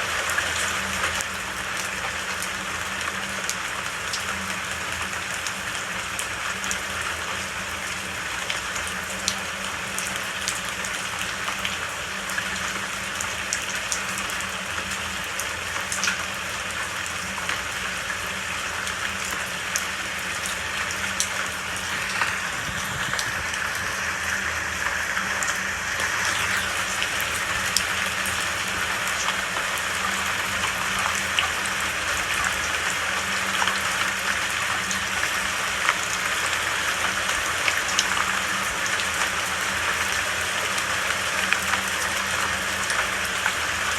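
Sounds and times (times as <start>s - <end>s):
raindrops pattering close by: 0.0s - 43.9s
steady rain hiss: 0.0s - 43.9s.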